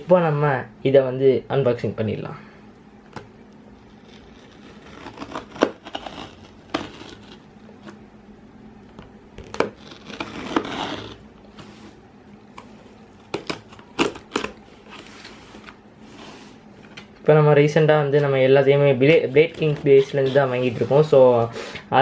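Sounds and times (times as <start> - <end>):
packaging crinkling and tearing: 3.9 - 7.5, 9.4 - 11.2, 13.0 - 15.8.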